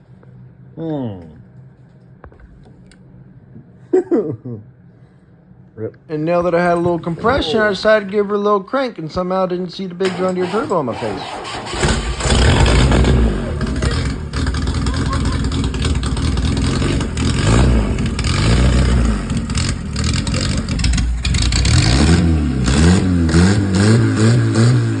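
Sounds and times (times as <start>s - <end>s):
engine revving: 10.0s - 25.0s.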